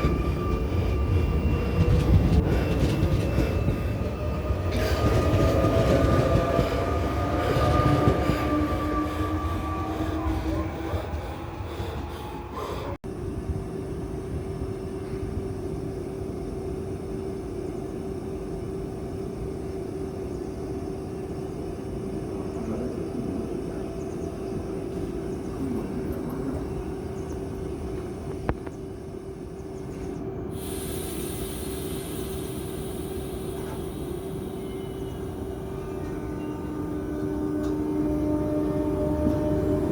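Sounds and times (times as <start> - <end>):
electric train rumble: 0.0 - 39.9
high hiss: 30.5 - 35.7.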